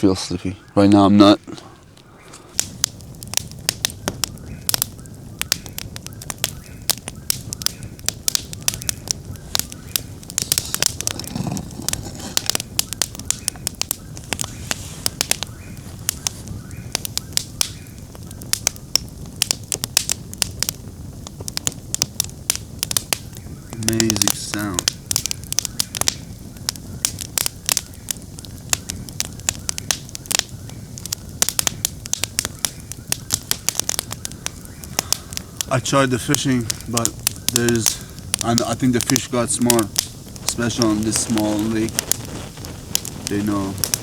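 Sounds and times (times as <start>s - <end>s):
campfire crackling and popping: 0.0s - 44.0s
low rush of flame: 0.5s - 44.0s.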